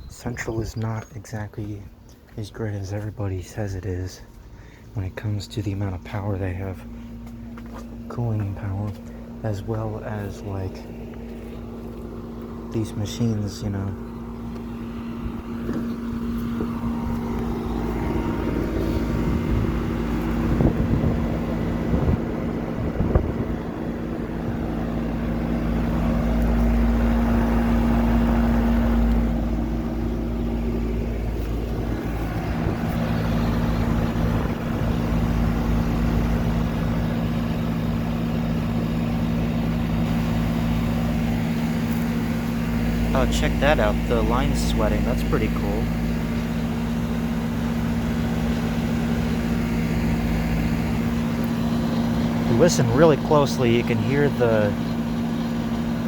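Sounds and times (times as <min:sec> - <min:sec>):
air conditioner compressor hum: 0:00.0 - 0:56.0.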